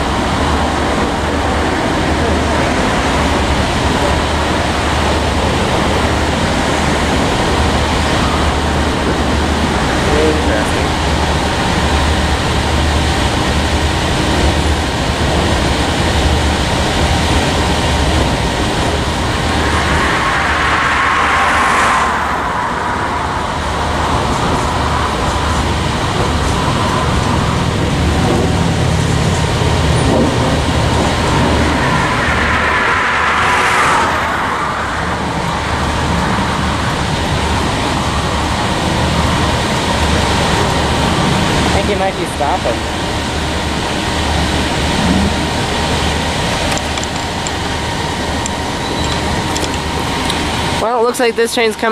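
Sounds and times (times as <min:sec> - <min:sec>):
freight train rolling past: 0:00.0 - 0:51.9
high squeal: 0:17.6 - 0:27.6, 0:30.2 - 0:38.6.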